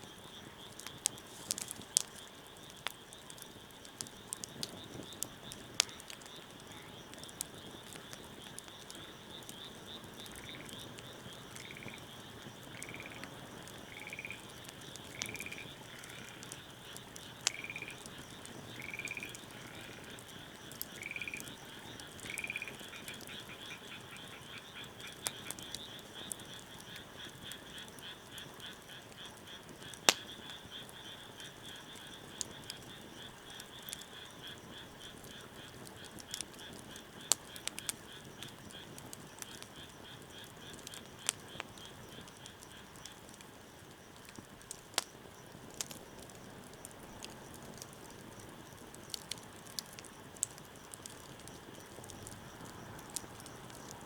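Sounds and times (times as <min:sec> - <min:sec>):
wood fire crackles: 0:00.0 - 0:54.0
frog calling: 0:07.8 - 0:31.4.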